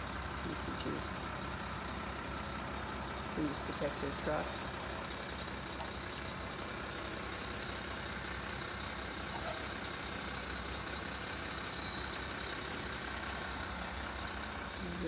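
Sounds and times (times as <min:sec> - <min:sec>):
truck engine running steadily: 0:00.0 - 0:15.0.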